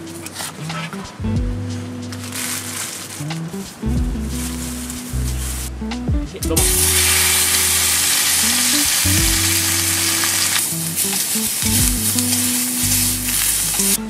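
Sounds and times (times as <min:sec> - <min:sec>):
background music with bass: 0:00.0 - 0:14.0
food sizzling in a pan: 0:06.6 - 0:14.0.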